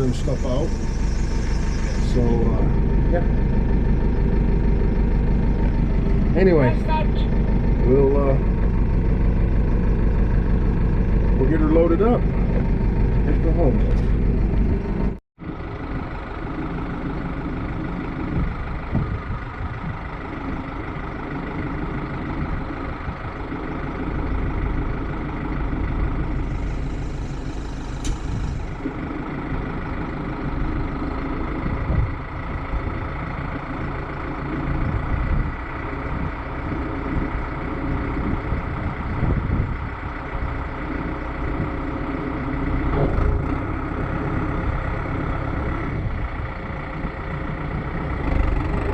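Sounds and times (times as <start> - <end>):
heavy vehicle engine running: 0.0 - 48.9
brief hiss: 26.6 - 28.7.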